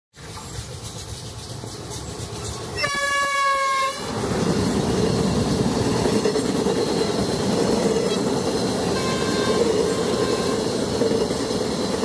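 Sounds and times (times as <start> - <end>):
train coaches rumbling past: 0.2 - 12.0
locomotive horn blast: 2.8 - 4.1, 9.0 - 10.7.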